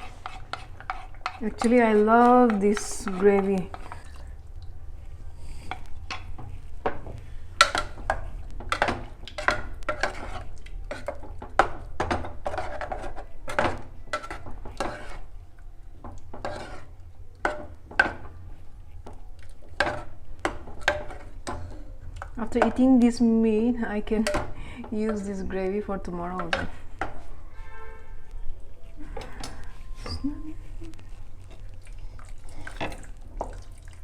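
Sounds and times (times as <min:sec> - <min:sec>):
spoon scraping a cooking pot: 0:00.0 - 0:04.4, 0:05.4 - 0:15.4, 0:16.0 - 0:23.2, 0:23.9 - 0:28.2.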